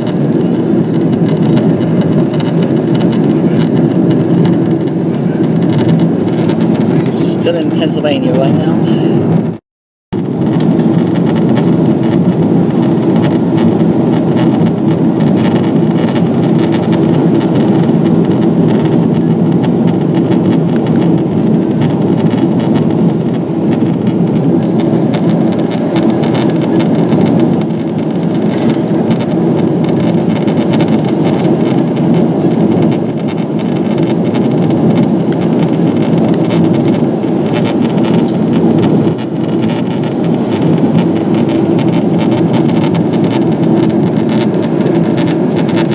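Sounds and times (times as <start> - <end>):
airplane cabin roar: 0.0 - 9.6, 10.2 - 45.9
low steady hum: 5.0 - 9.6.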